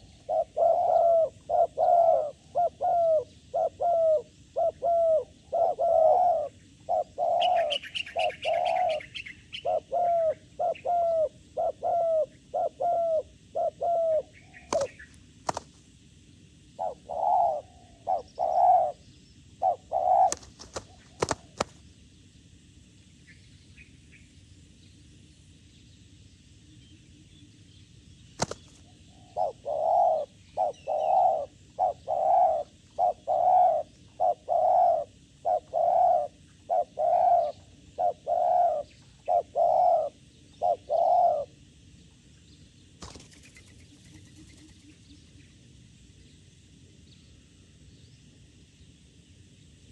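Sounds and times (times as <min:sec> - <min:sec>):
doves cooing: 0:00.0 - 0:15.7, 0:16.7 - 0:19.0, 0:19.6 - 0:21.8, 0:28.4 - 0:41.6.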